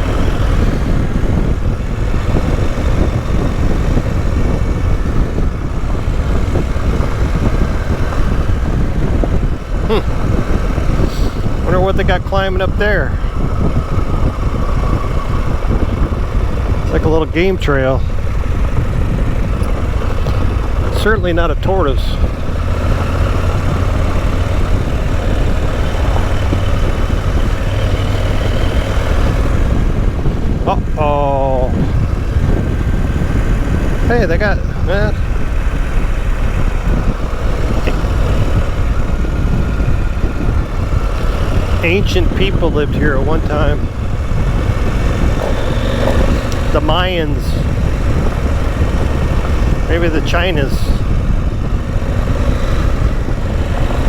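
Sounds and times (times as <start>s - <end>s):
motorcycle engine rumble: 0.0s - 54.0s
wind buffeting on microphone: 0.0s - 54.0s.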